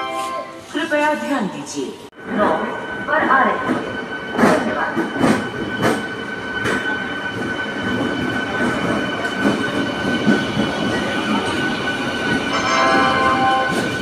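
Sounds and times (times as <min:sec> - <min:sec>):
train wheels squealing: 0:03.0 - 0:14.0.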